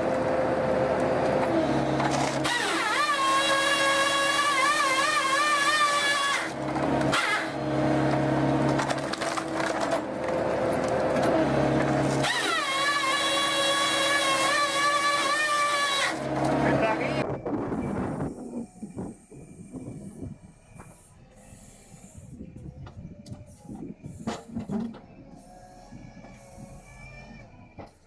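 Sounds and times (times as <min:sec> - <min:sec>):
saw blade whining through log: 0:00.0 - 0:17.2
engine hum: 0:00.0 - 0:28.0.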